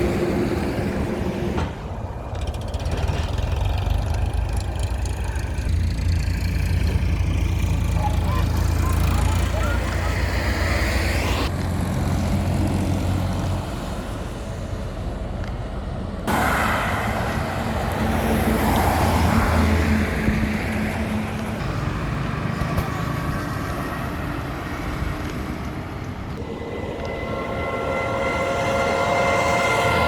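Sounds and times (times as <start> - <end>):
highway traffic passing: 0.0 - 30.0
steady tones: 26.3 - 30.0.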